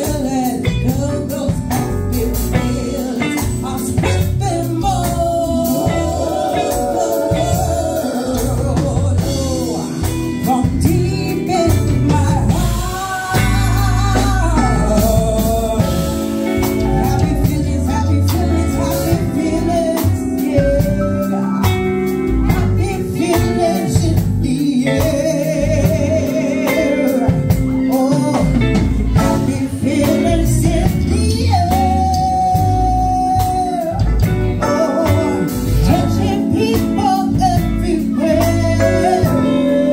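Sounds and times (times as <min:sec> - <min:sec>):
band playing guitar bass and drums: 0:00.0 - 0:39.9
woman singing with vibrato: 0:02.3 - 0:21.0.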